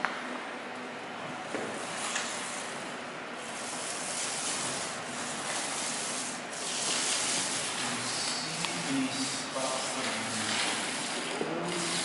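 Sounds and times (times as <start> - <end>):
hand tool scraping a wall: 3.4 - 12.0.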